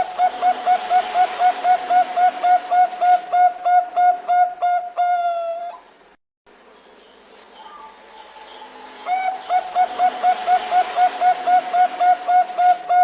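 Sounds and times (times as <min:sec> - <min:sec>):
dove cooing: 0:00.0 - 0:05.8, 0:09.0 - 0:13.0.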